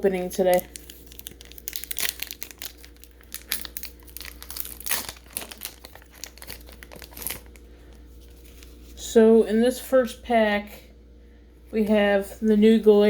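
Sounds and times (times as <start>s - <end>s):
foil pack crinkling: 0.0s - 9.0s.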